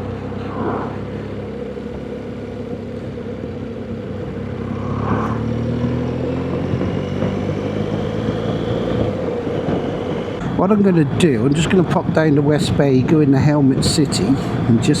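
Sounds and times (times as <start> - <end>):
wind and road noise: 0.0 - 15.0
motorcycle engine running: 0.1 - 10.4.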